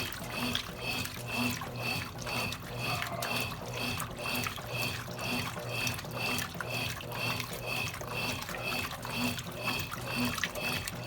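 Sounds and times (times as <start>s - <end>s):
washing machine running: 0.0s - 11.0s.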